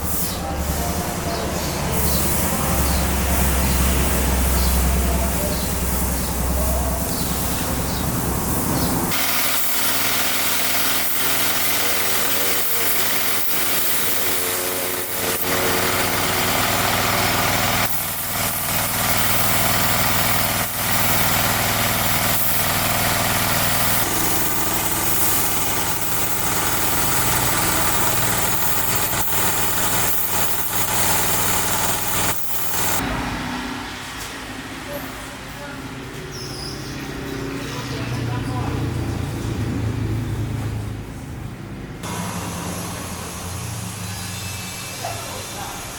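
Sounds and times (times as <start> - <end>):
vehicle engine idling: 0.5 - 33.1.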